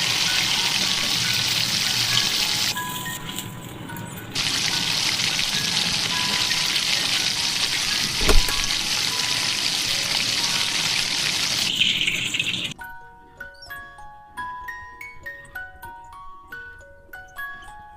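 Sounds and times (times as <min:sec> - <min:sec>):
batter sizzling in hot fat: 0:00.0 - 0:03.4, 0:04.4 - 0:12.7.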